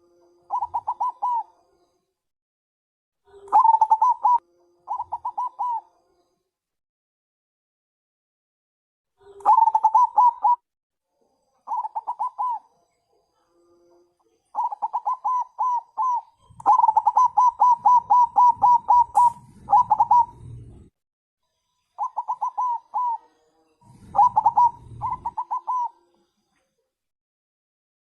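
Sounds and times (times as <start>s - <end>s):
dove cooing in clipped notes: 0.5s - 1.5s, 3.3s - 5.9s, 9.2s - 10.6s, 11.7s - 12.7s, 14.6s - 20.9s, 22.0s - 26.1s.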